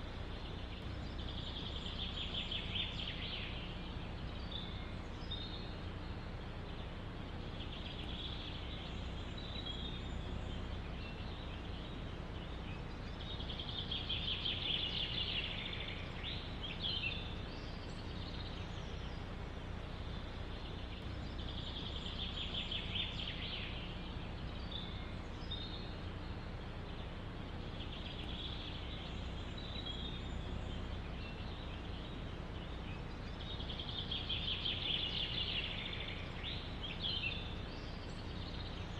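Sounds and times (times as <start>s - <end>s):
low background noise: 0.0s - 38.9s
songbirds singing: 0.0s - 38.9s.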